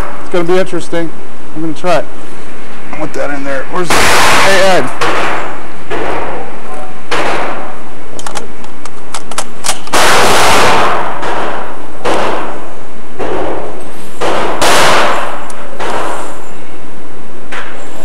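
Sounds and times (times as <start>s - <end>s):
loud launcher shots: 3.8s - 7.8s, 9.8s - 16.6s
sharp clicks: 8.2s - 10.0s.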